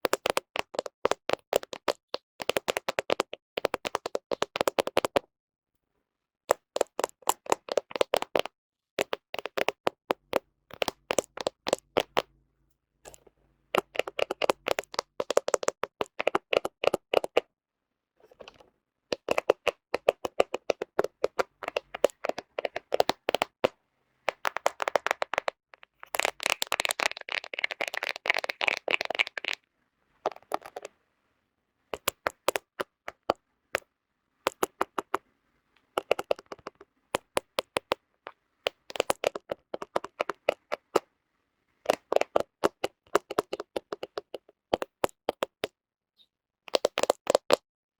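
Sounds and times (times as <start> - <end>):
fingernails tapping on phone: 13.8 - 17.4, 18.4 - 25.5, 36.0 - 38.0, 38.7 - 41.0, 41.9 - 45.7.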